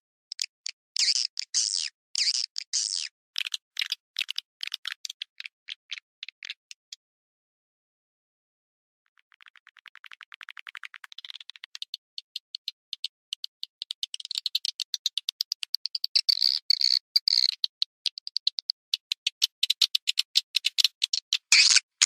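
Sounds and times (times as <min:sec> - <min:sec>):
high chirping clicks: 0:00.3 - 0:07.0, 0:09.3 - 0:22.0.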